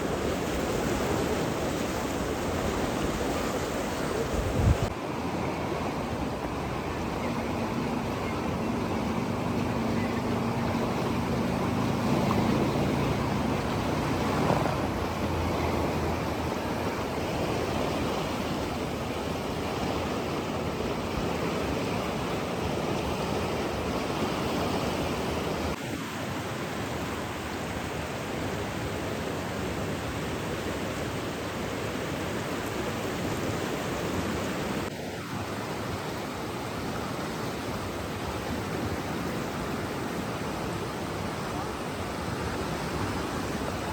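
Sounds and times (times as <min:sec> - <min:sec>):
water rushing: 0:00.0 - 0:43.9.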